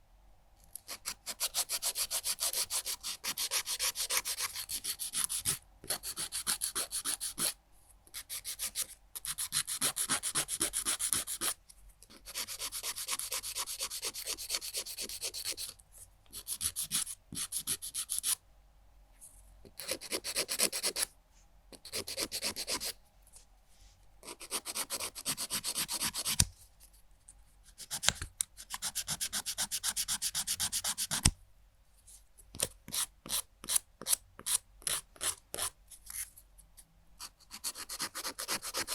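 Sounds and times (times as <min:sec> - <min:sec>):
nail file rasping on fingernails: 0:00.8 - 0:07.6, 0:08.2 - 0:11.6, 0:12.2 - 0:15.8, 0:16.4 - 0:18.4, 0:24.3 - 0:26.4, 0:27.8 - 0:31.3, 0:32.6 - 0:36.3, 0:37.5 - 0:38.9.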